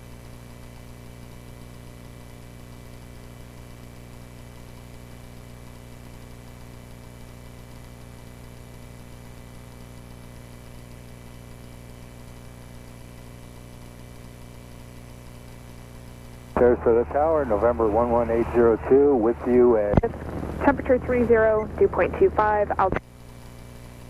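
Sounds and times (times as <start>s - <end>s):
light aircraft engine droning: 16.6s - 23.0s.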